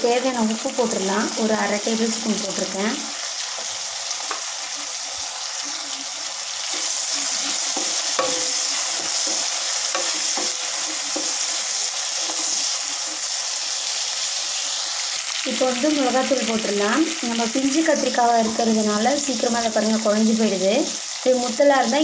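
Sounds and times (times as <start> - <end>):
eggplant sizzling in oil: 0.0 - 22.0
wooden spatula scraping pan: 6.7 - 13.4.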